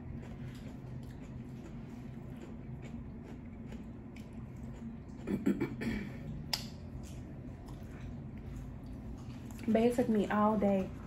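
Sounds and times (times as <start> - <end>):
chewing crunchy taco: 0.0 - 9.7
steady low hum: 0.0 - 11.0
wet mouth clicks and crunches: 6.4 - 7.9.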